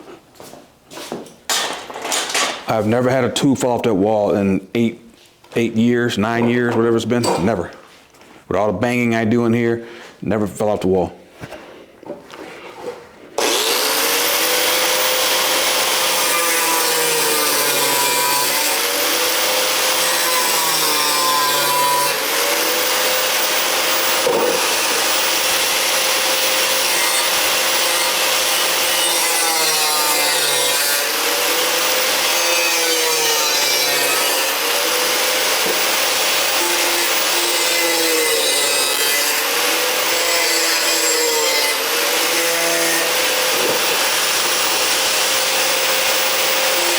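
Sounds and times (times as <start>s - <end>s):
grinder cutting metal: 13.4s - 46.9s.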